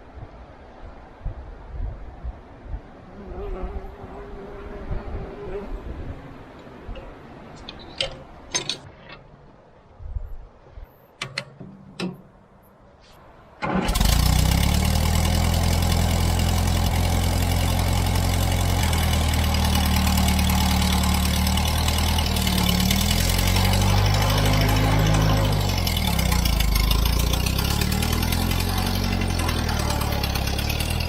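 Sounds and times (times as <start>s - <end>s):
tractor engine running: 13.5s - 31.0s.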